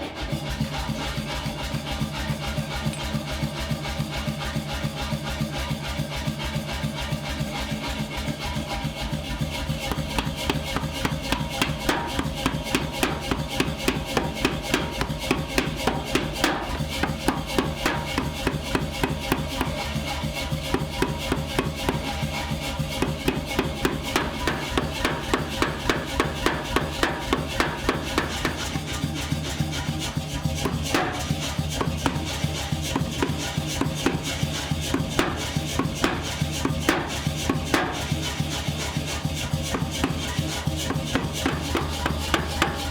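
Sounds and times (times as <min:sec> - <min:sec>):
hammer striking steel on anvil: 0:02.9 - 0:03.7, 0:09.9 - 0:19.9, 0:23.0 - 0:29.8, 0:30.7 - 0:38.9.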